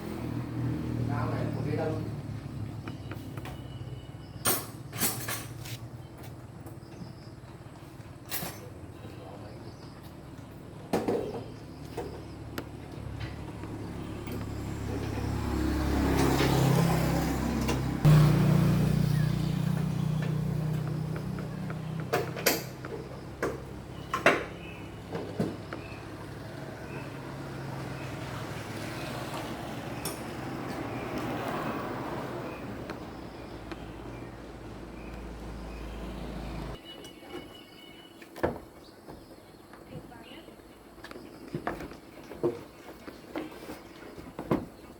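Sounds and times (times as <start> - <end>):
vehicle engine humming: 0.0 - 7.8, 11.5 - 36.8.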